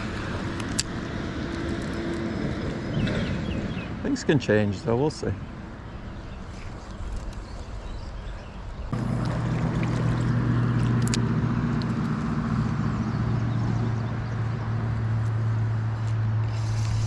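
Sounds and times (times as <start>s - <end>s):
low engine-like hum: 8.5s - 17.0s.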